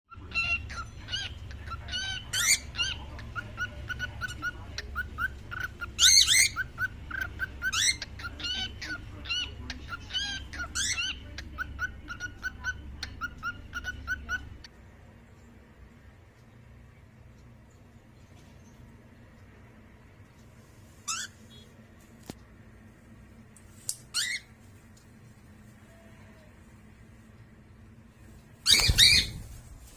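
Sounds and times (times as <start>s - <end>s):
cockatiels chirping: 0.1s - 14.7s, 21.0s - 21.6s, 28.6s - 29.6s.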